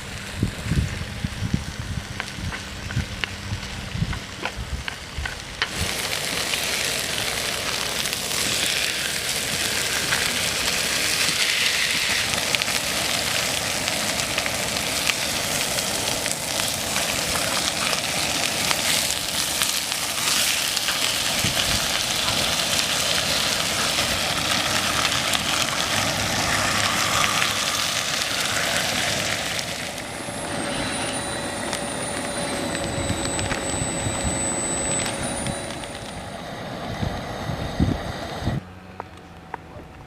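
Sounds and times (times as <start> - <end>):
food sizzling in a hot pan: 5.7 - 36.1.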